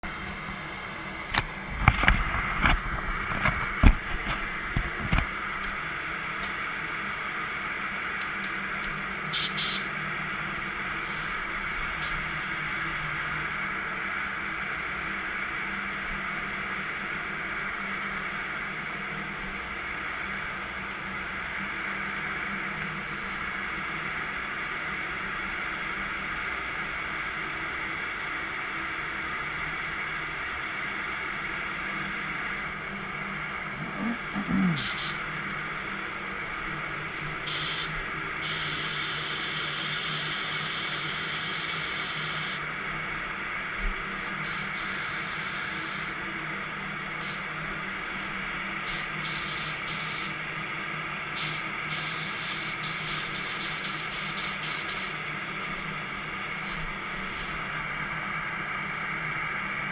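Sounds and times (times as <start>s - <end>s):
steady background noise: 0.0s - 59.9s
spray paint can hissing: 9.3s - 9.9s, 34.8s - 35.2s, 37.5s - 42.6s, 44.4s - 46.1s, 48.9s - 50.3s, 51.4s - 55.1s.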